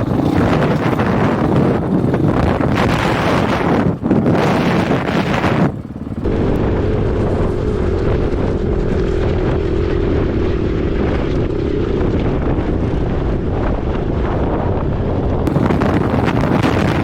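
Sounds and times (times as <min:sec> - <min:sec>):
dirt bike engine running: 0:00.0 - 0:17.0
wind buffeting microphone: 0:00.0 - 0:17.0.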